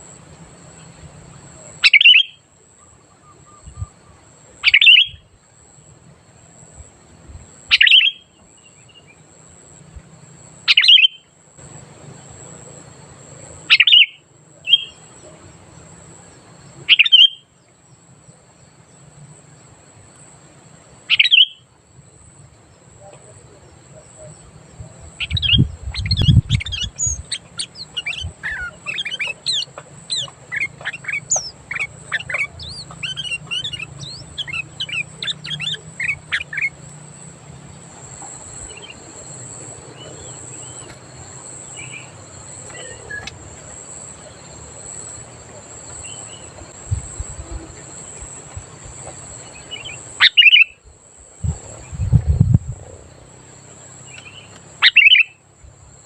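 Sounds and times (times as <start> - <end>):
fast chattering birdsong: 0.8 - 2.4, 3.3 - 5.3, 7.6 - 9.2, 13.3 - 17.5, 21.0 - 21.7, 22.7 - 50.8, 51.4 - 55.4
bulbul calling: 1.6 - 5.3, 7.6 - 9.1, 10.7 - 11.3, 13.6 - 15.5, 16.8 - 17.6, 21.1 - 21.7, 22.9 - 50.8, 54.0 - 55.4
brief low rumble: 46.7 - 47.9, 51.4 - 53.1.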